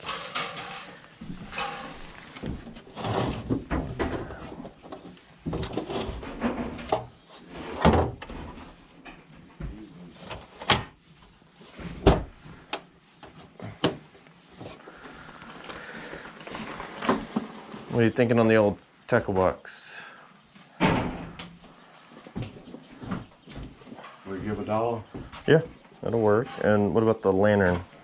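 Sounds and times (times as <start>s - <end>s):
objects knocking and clattering: 0.0s - 7.2s.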